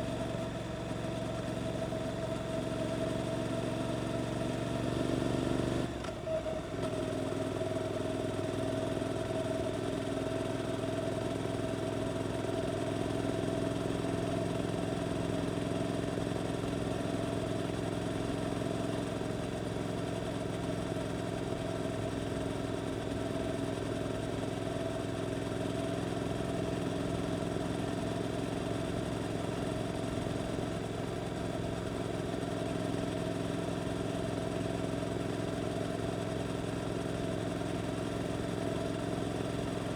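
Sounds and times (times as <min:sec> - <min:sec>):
motorcycle engine running: 0:06.8 - 0:39.9.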